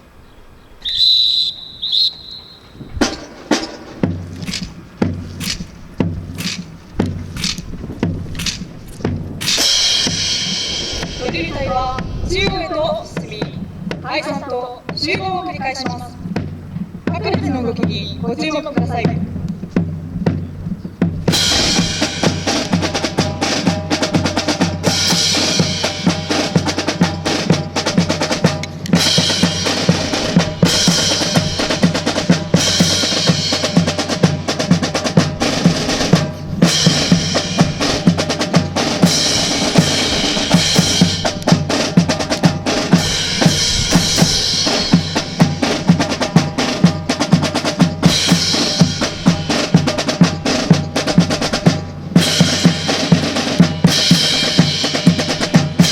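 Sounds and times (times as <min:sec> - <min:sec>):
marching snare and bass drum: 0:02.4 - 0:55.9.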